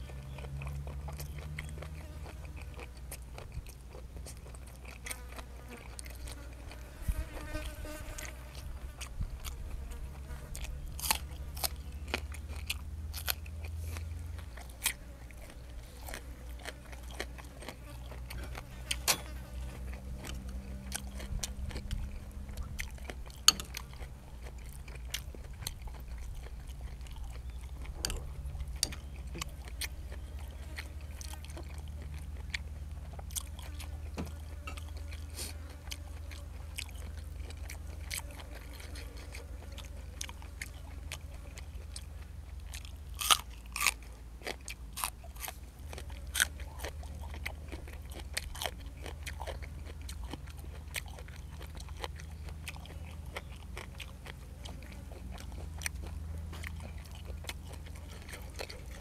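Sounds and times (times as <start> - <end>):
chewing with crunches: 0.0 - 59.0.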